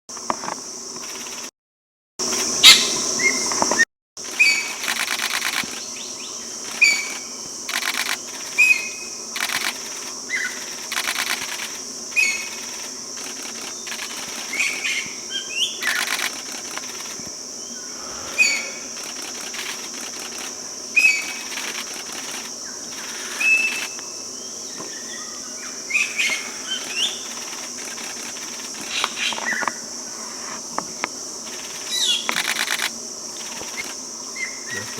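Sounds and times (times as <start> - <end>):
high-pitched insect drone: 0.2 - 1.5, 2.2 - 34.9
rapid ticking: 4.8 - 5.8, 6.7 - 8.5, 9.4 - 11.8, 12.4 - 14.8, 15.8 - 17.2, 18.9 - 20.6, 21.2 - 23.9, 26.8 - 28.9
bird whistled notes: 17.8 - 18.9.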